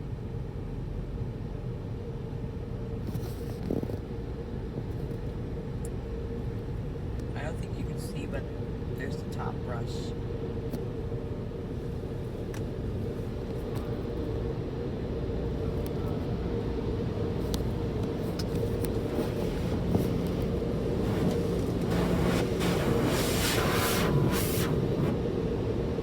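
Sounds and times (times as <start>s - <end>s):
car wash machinery rumbling: 6.4s - 26.0s
rushing noise: 18.7s - 25.2s.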